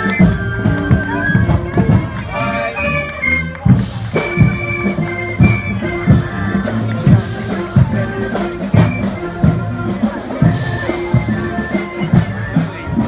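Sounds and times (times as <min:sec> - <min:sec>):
brass holding chords: 0:00.0 - 0:13.0
drum hits: 0:03.6 - 0:13.0.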